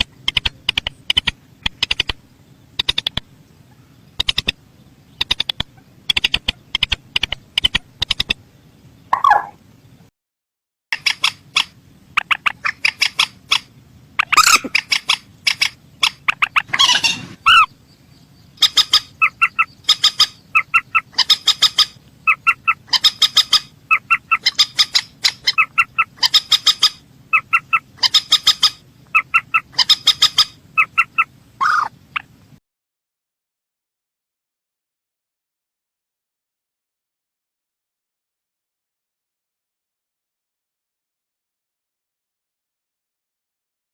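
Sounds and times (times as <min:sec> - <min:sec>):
rail bird clucking calls: 0:00.0 - 0:08.4, 0:09.1 - 0:09.6, 0:11.0 - 0:17.8, 0:18.6 - 0:32.4.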